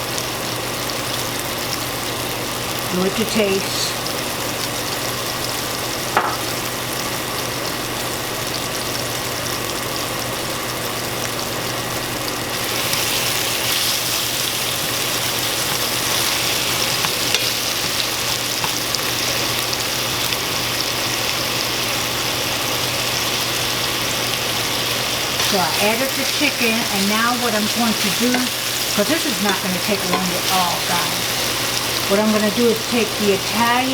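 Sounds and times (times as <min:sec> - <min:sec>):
chicken sizzling in oil: 0:00.0 - 0:33.9
steady low hum: 0:24.8 - 0:33.9.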